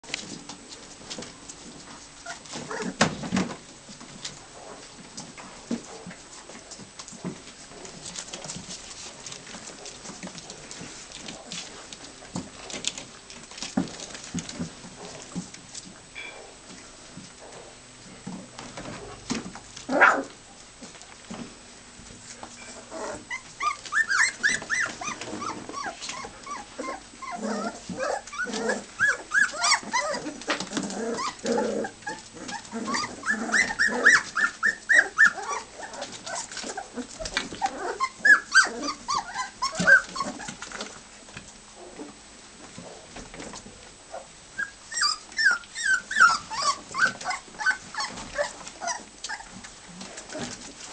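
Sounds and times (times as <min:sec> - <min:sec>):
puppies whimpering and yipping: 0:02.2 - 0:03.0, 0:22.6 - 0:40.9, 0:44.1 - 0:50.6.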